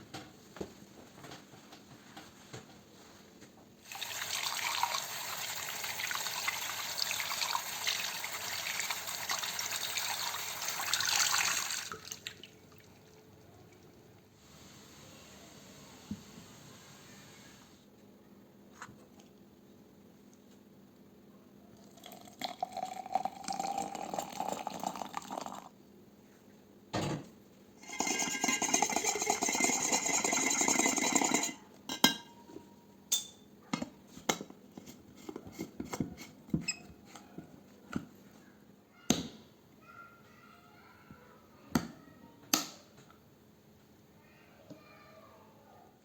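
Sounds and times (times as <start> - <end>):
kitchen tap running into a sink: 3.8 - 14.0, 22.0 - 25.7, 27.8 - 31.6
dishes and utensils clinking: 27.8 - 36.4.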